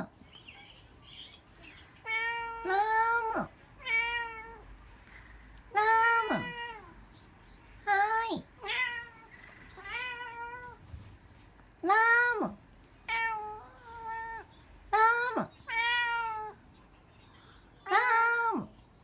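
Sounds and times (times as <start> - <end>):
cat meowing: 1.7 - 4.6, 5.7 - 7.0, 7.9 - 10.8, 11.9 - 16.6.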